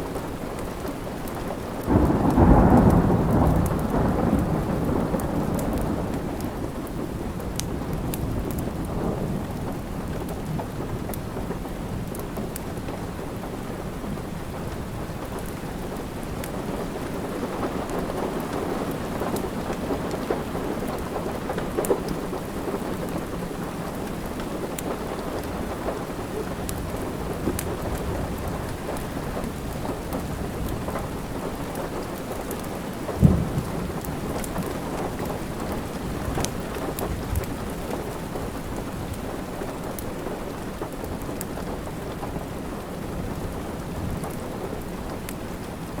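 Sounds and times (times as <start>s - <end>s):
steady rain: 0.0s - 46.0s
wood fire crackling: 15.1s - 46.0s.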